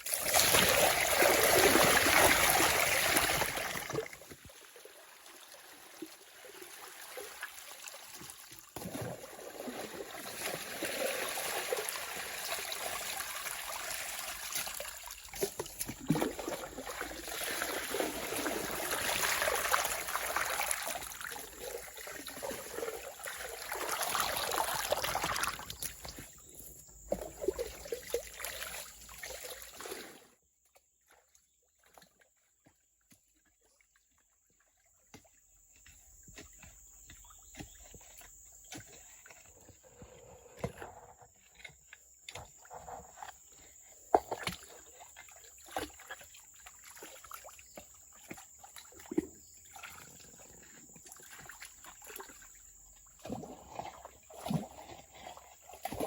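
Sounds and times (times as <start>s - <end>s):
water running and trickling: 0.0s - 26.2s.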